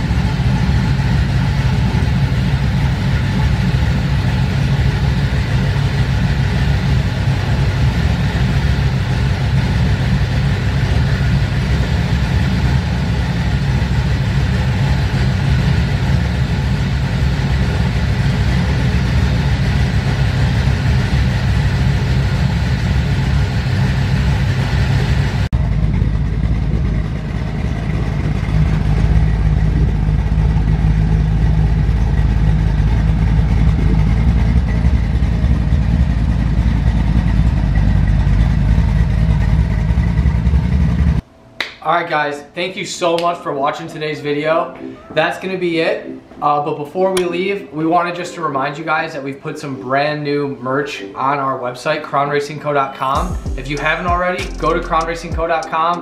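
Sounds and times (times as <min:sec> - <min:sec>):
car engine idling: 0:00.0 - 0:41.3, 0:53.0 - 0:56.0.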